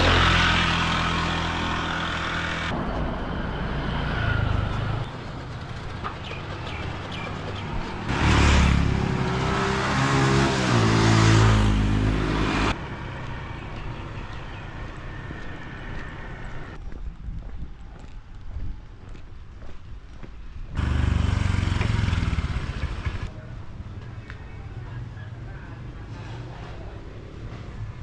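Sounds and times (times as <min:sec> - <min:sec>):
street noise: 0:00.0 - 0:28.0
vehicle engine passing by: 0:06.7 - 0:13.8, 0:20.8 - 0:23.3.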